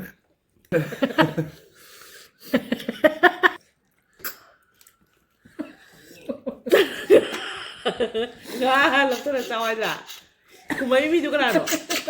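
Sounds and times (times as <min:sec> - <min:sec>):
chewing and mouth noises: 0:03.6 - 0:05.5
person speaking: 0:08.5 - 0:12.0.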